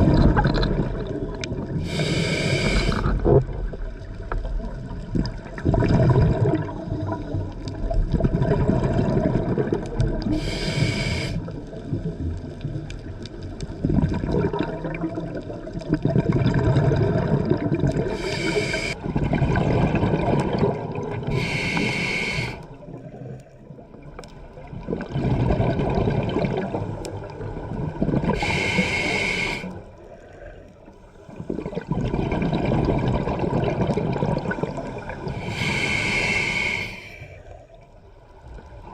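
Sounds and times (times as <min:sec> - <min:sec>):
exhaled bubbles gurgling: 0:00.0 - 0:38.9
regulator hissing inhales: 0:01.8 - 0:03.2, 0:10.3 - 0:11.5, 0:18.1 - 0:19.0, 0:21.3 - 0:22.7, 0:28.4 - 0:29.8, 0:35.3 - 0:37.6.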